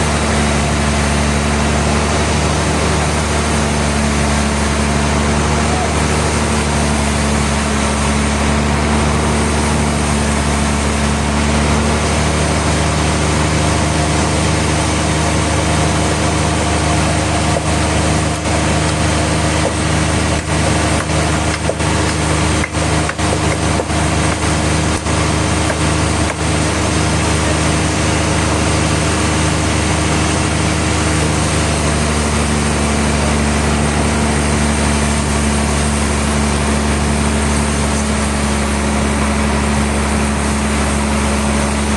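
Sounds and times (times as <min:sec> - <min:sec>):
sawmill machinery engine running: 0:00.0 - 0:41.9.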